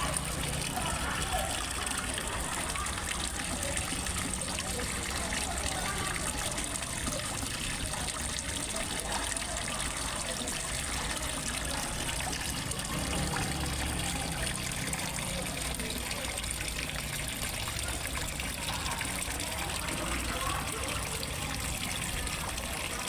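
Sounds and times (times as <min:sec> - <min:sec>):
water splashing into a pond: 0:00.0 - 0:23.0.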